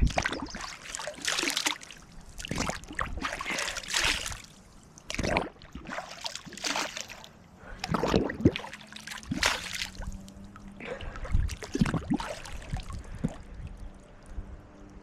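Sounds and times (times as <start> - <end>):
creek water splashing: 0.0 - 14.2.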